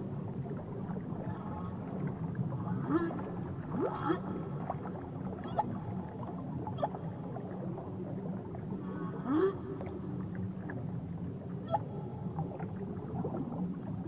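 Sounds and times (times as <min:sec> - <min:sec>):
underwater rumble: 0:00.0 - 0:14.0
whale whoops underwater: 0:02.8 - 0:07.5, 0:08.8 - 0:10.2, 0:11.6 - 0:12.2.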